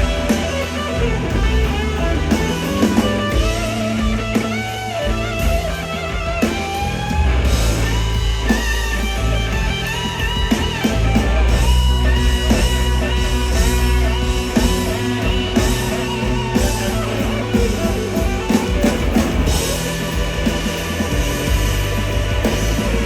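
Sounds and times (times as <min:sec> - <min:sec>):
bass guitar: 0:00.0 - 0:23.0
drums: 0:00.0 - 0:23.0
electric guitar lead bending notes: 0:00.0 - 0:23.0.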